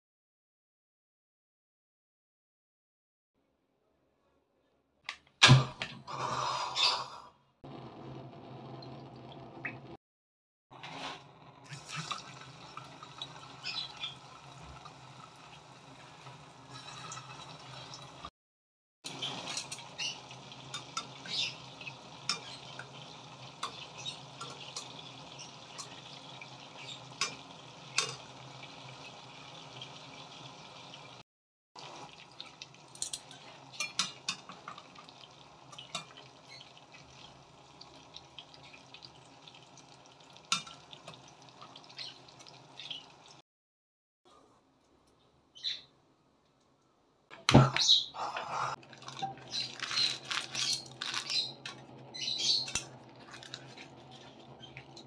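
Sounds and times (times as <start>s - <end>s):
meat frying in hot oil: 10.8s - 18.3s, 19.1s - 31.2s, 31.8s - 43.4s, 48.8s - 55.0s.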